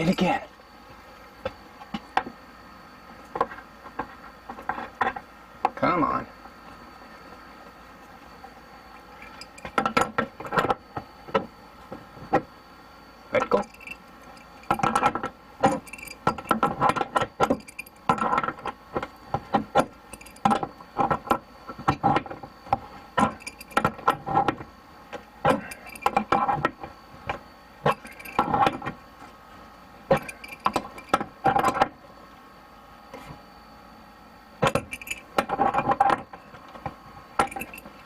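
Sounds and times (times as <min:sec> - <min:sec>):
air conditioner hum: 0:00.0 - 0:38.0
metal fittings and tools clinking: 0:09.1 - 0:09.8, 0:13.6 - 0:15.0, 0:15.6 - 0:16.6, 0:20.1 - 0:20.5, 0:23.2 - 0:23.8, 0:25.5 - 0:26.2, 0:27.9 - 0:28.7, 0:30.1 - 0:31.2, 0:34.8 - 0:35.3, 0:37.4 - 0:38.0.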